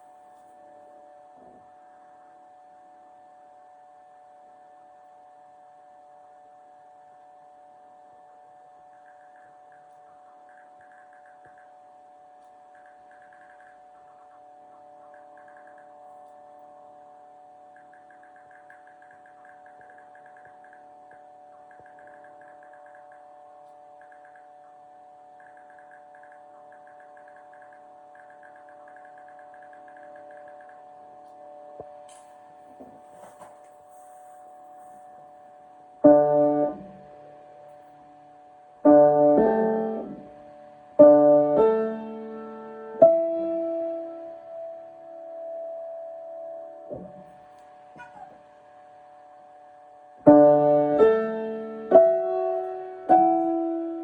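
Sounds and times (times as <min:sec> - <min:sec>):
piano chords: 0:12.2 - 0:48.9, 0:50.2 - 0:54.0.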